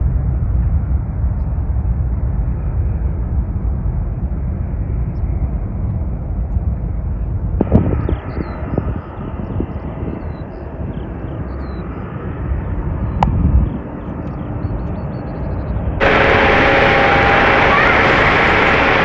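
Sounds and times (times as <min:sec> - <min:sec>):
jet engines rumbling: 0:16.0 - 0:19.0.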